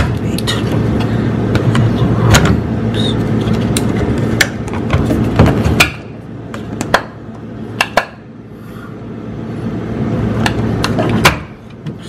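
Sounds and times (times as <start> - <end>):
low rumbling handling noise: 0.0 - 8.3.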